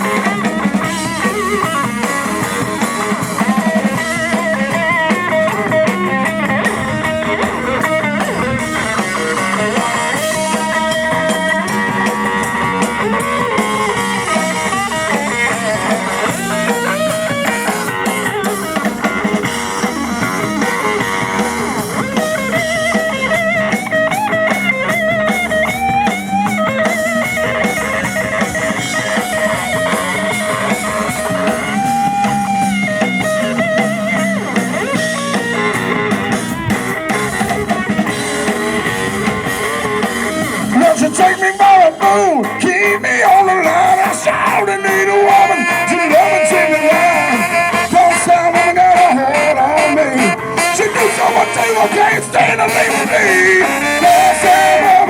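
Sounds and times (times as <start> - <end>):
blues-rock band playing: 0.0 - 55.0
electric guitar lead: 0.0 - 55.0.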